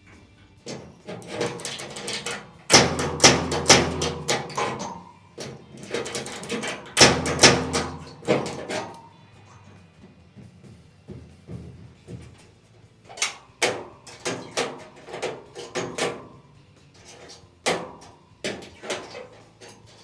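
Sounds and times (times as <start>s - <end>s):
rapid knocks on sheet metal: 1.2s - 5.0s, 5.8s - 9.0s.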